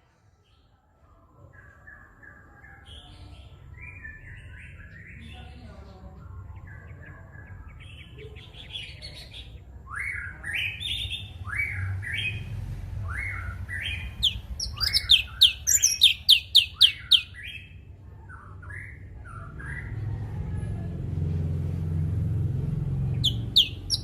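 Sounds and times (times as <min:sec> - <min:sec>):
low steady rumble: 0:11.2 - 0:24.0
bird whistling rising phrases: 0:13.2 - 0:17.4, 0:23.2 - 0:24.0.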